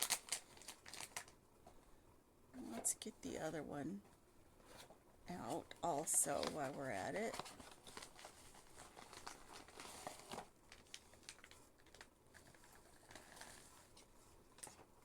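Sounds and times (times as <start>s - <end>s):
packaging crinkling and clicking: 0.0s - 1.4s, 5.7s - 14.8s.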